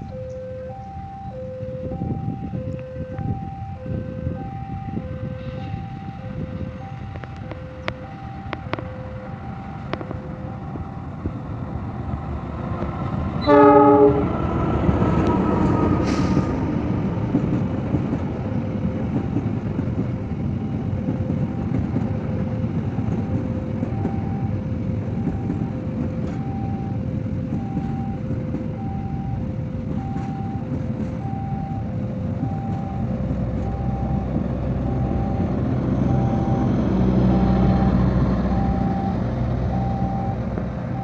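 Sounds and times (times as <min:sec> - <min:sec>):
two-tone warning beep: 0:00.0 - 0:11.3, 0:20.2 - 0:41.0
train rumbling: 0:00.0 - 0:41.0
train horn blast: 0:13.4 - 0:16.7.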